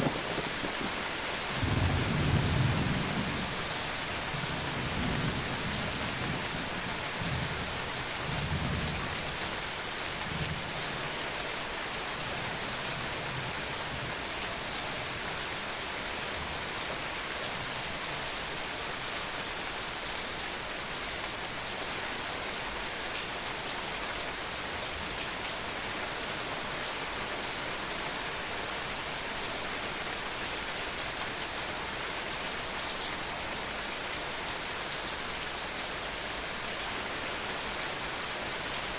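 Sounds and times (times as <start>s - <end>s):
thunder rumble: 0.0s - 1.0s
rain pattering: 0.0s - 38.9s.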